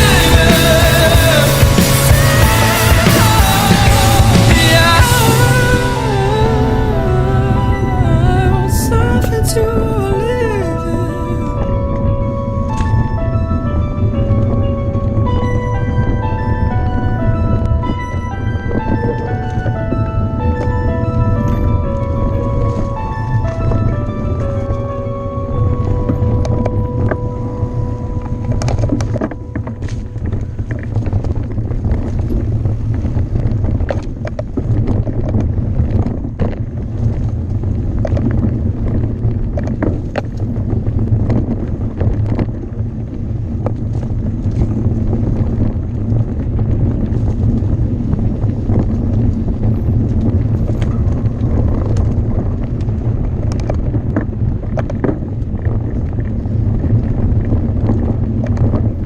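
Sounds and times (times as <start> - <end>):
low rumble of bike tyres: 0.0 - 59.0
wind rushing over microphone: 0.0 - 59.0
bike rattling and knocking: 28.4 - 59.0.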